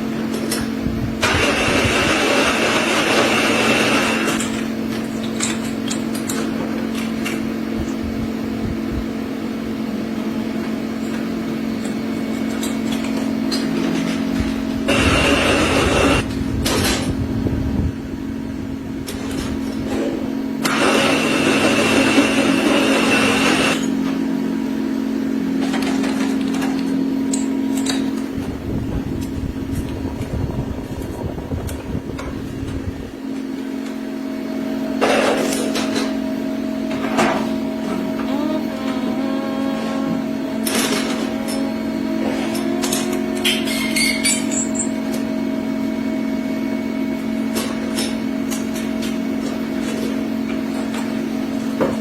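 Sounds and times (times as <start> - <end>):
machine tool humming: 0.0 - 51.4
loud hissing with high whine: 1.2 - 4.4, 14.8 - 16.3, 20.6 - 23.9.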